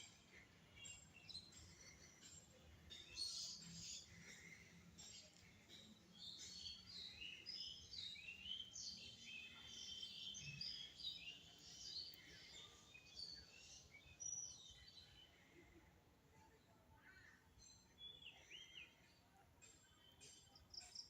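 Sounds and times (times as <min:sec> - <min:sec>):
small birds chirping: 0:00.0 - 0:15.4.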